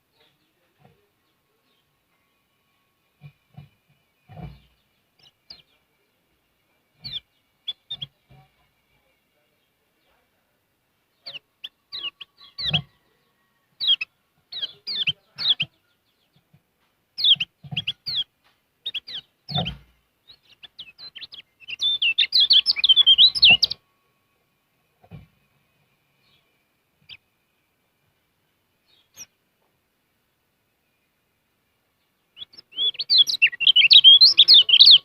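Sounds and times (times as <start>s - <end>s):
bird chirping: 0.0s - 24.3s, 24.9s - 35.0s
bird chattering song: 7.0s - 8.6s, 11.1s - 13.0s, 13.8s - 16.4s, 17.2s - 23.8s, 28.9s - 29.4s, 32.0s - 35.0s.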